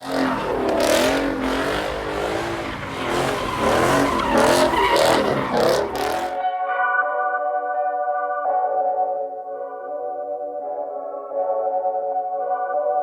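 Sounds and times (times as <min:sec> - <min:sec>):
tyre squeal: 0:00.0 - 0:06.4
vehicle engines revving: 0:00.0 - 0:06.4.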